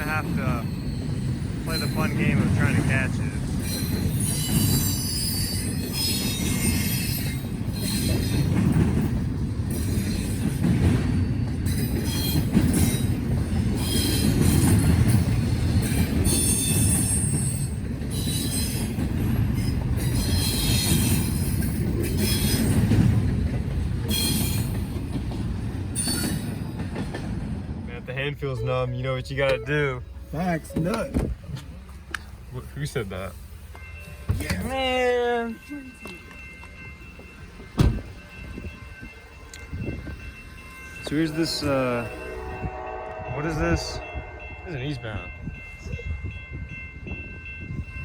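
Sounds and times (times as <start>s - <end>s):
steel wheels squealing: 0.0s - 8.8s, 9.7s - 23.0s, 24.0s - 24.9s, 25.9s - 26.8s
freight train cars rolling: 0.0s - 48.0s.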